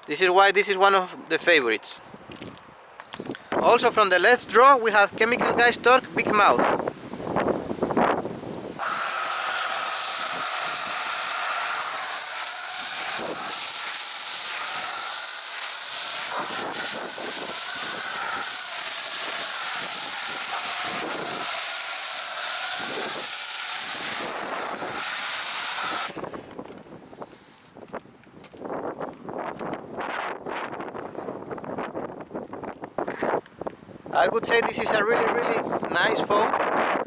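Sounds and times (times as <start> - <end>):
pressure washer foam spraying hiss: 8.8 - 26.5.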